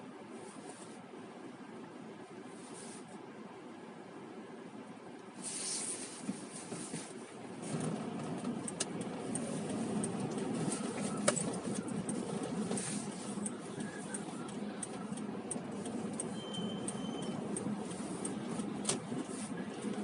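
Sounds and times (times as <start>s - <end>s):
rumble of passing traffic: 0.0s - 20.0s.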